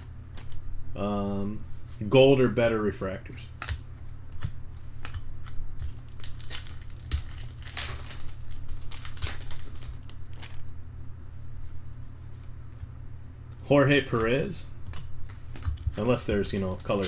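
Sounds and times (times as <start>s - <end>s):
foil wrappers crinkling and tearing: 5.4s - 10.7s, 15.4s - 17.0s.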